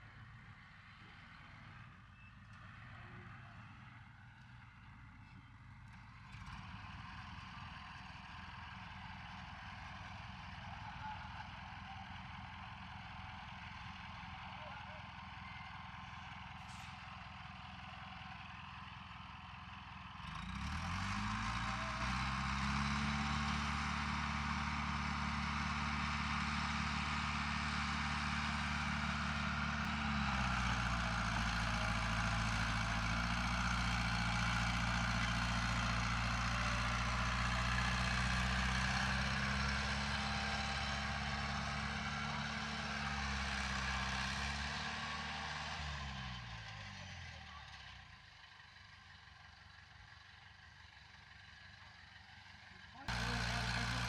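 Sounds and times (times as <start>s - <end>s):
heavy diesel engine revving: 20.2s - 47.2s, 53.1s - 54.0s.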